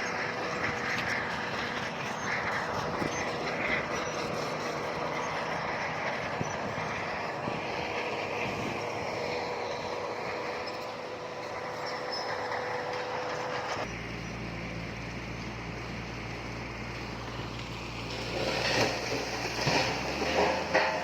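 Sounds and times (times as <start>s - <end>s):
heavy diesel machinery running: 0.0s - 21.0s
stone and metal clattering: 18.3s - 21.0s.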